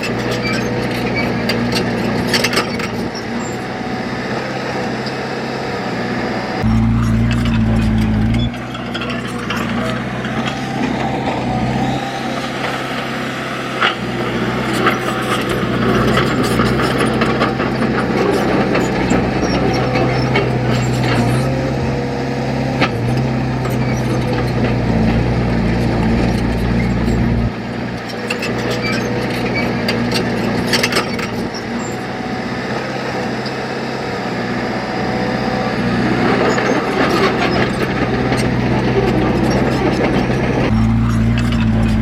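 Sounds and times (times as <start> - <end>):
clanks and scraping: 0.0 - 3.6, 6.6 - 11.9, 13.8 - 21.8, 22.7 - 31.8, 36.2 - 42.0
heavy diesel engine running: 0.0 - 42.0.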